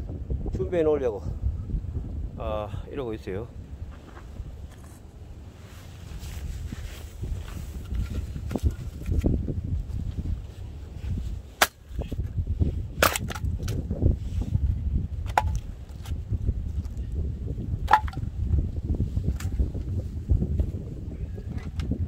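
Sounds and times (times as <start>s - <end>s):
wood cracking and snapping: 13.0s - 13.8s.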